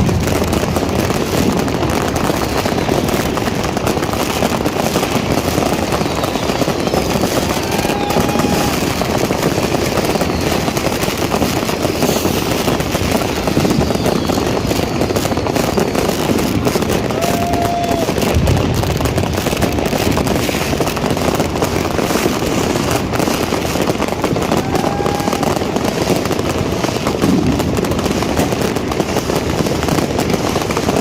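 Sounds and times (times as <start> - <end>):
firecrackers crackling and popping: 0.0 - 31.0
rocket whistles: 5.7 - 9.0, 9.7 - 11.0, 13.2 - 16.4.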